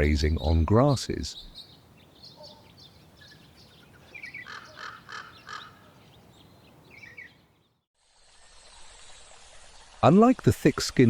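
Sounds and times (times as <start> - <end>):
birds chirping: 0.0 - 7.9
loud repeated bird calls: 0.1 - 7.8.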